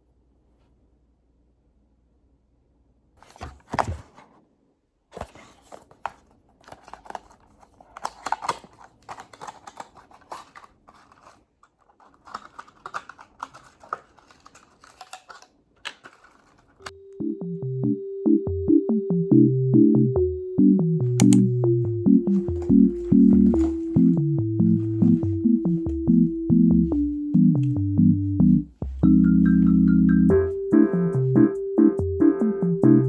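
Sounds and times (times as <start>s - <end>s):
objects clicking and rustling: 5.2s - 16.9s, 22.3s - 25.9s
synthesizer music: 16.9s - 33.0s.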